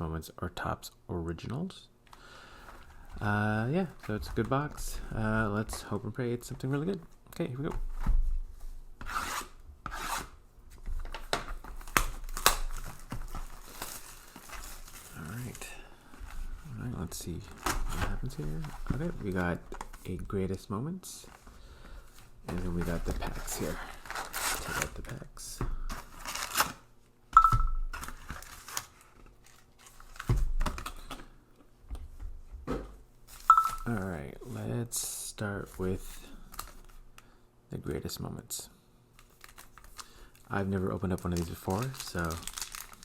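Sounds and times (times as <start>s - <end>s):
foil packs crinkling: 11.1s - 20.2s, 22.5s - 25.2s, 25.9s - 26.8s, 27.9s - 31.1s, 39.2s - 43.0s
cardboard and wrapping tearing: 11.6s - 15.6s, 23.3s - 25.0s, 26.0s - 26.8s, 27.9s - 30.9s, 39.2s - 40.0s, 41.2s - 43.0s.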